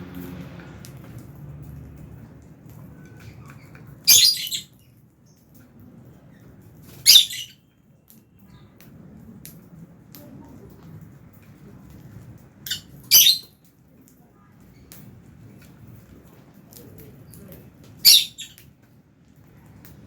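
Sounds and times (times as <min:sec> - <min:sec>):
lovebirds squawking: 0:03.1 - 0:04.8, 0:07.0 - 0:07.6, 0:12.7 - 0:13.5, 0:18.0 - 0:18.6.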